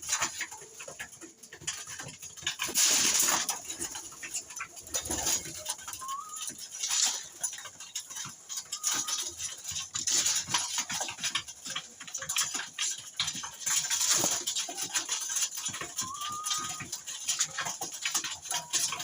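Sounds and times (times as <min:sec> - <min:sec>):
birds pecking and scuffling: 0:00.0 - 0:19.0
rising bird call: 0:06.0 - 0:06.5, 0:08.7 - 0:09.3, 0:16.0 - 0:16.8.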